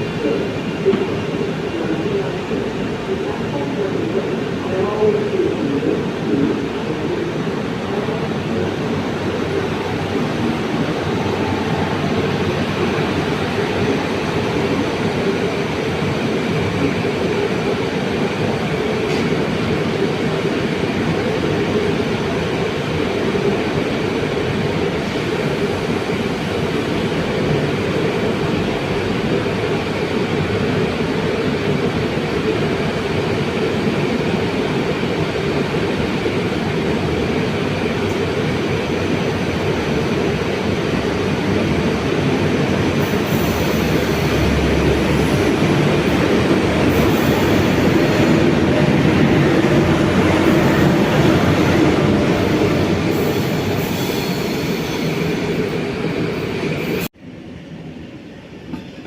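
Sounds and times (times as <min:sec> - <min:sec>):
train wheels rolling on rails: 0:00.0 - 0:57.1.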